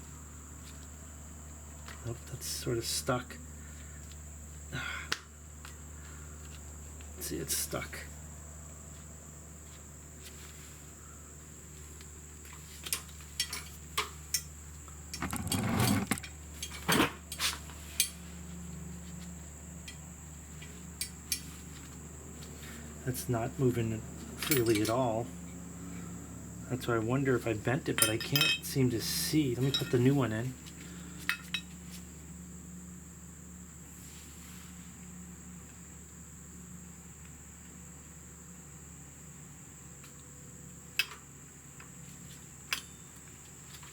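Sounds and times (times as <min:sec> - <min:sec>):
crickets chirping: 0:00.0 - 0:43.9
soft rustle: 0:08.9 - 0:13.4, 0:33.9 - 0:35.0.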